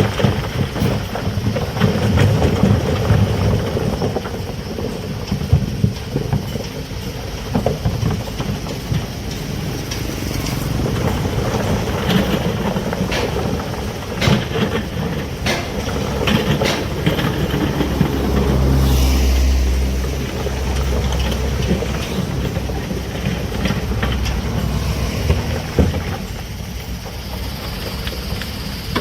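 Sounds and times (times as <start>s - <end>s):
heavy machinery engine rumbling: 0.0s - 29.0s
metallic clanks and knocks: 4.9s - 18.8s, 19.9s - 26.5s.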